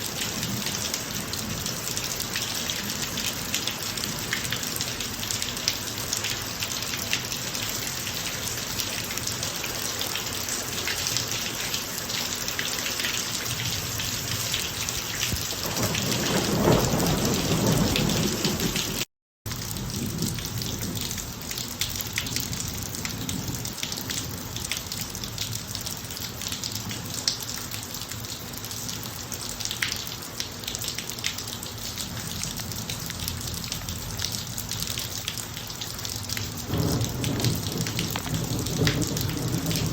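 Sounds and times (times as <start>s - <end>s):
rain falling on driveway: 0.0s - 39.9s
thunder rumble: 15.4s - 19.0s, 36.6s - 39.9s.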